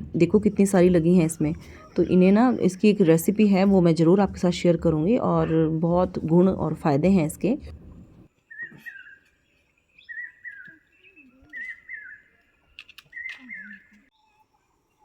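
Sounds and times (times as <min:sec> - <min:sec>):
songbird warbling: 0:08.5 - 0:14.1.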